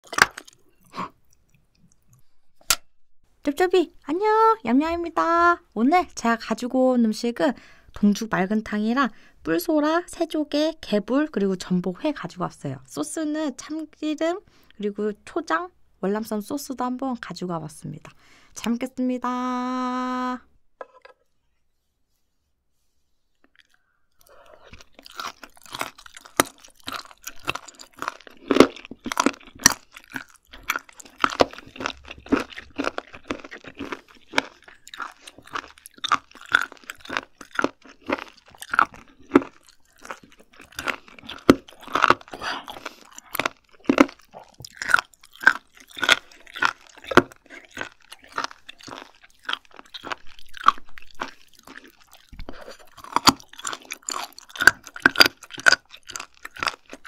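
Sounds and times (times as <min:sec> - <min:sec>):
crisp crunching chews: 0:00.0 - 0:02.3, 0:23.4 - 0:57.0.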